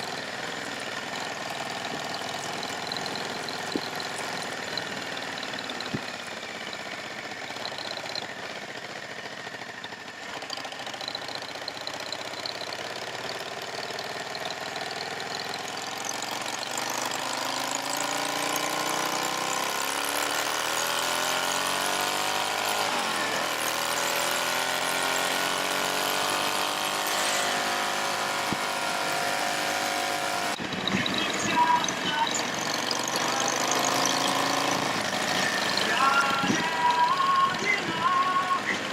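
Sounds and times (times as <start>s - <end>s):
motorcycle engine running: 0.0s - 38.9s
whine: 14.3s - 38.9s.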